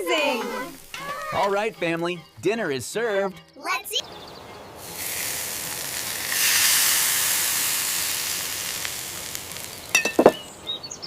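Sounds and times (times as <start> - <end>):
chicken sizzling on grill: 0.2 - 1.8, 4.7 - 10.8.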